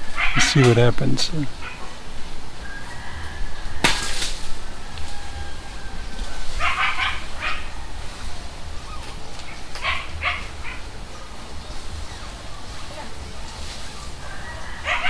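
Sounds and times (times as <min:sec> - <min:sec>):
dog barking: 0:06.6 - 0:07.7, 0:08.8 - 0:10.9, 0:12.1 - 0:15.0.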